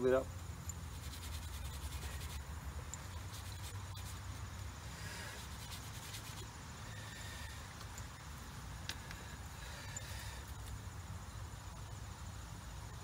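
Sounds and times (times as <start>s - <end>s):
hand scraping and rubbing metal: 0.7s - 8.2s.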